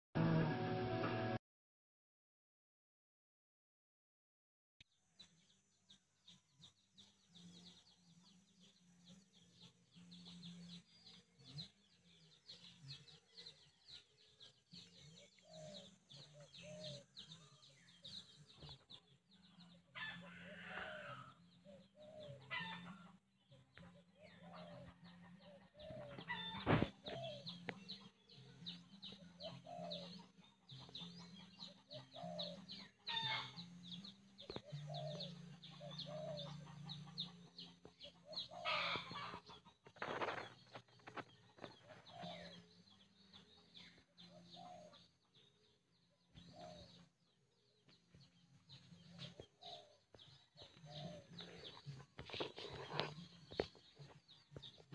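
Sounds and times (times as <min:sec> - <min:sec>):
birds chirping: 0:06.3 - 0:54.9.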